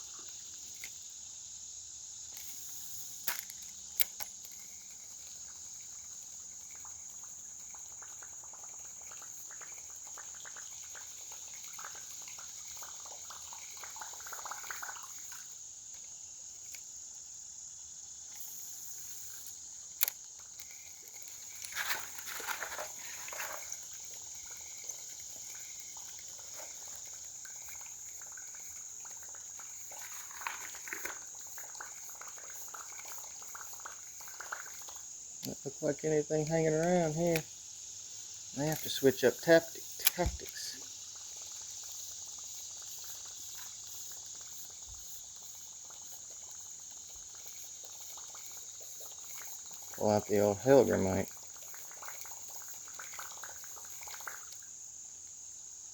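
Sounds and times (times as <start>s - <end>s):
crickets chirping: 0.0s - 55.9s
sharp click: 40.0s - 40.6s.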